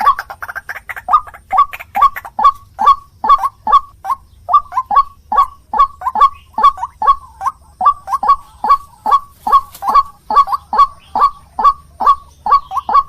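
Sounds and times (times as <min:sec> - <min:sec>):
waterhen calling harsh notes: 0:00.0 - 0:13.0.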